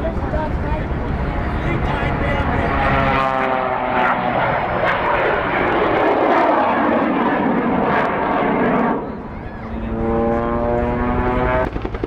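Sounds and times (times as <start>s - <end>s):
plane engine passing: 0.0s - 12.0s.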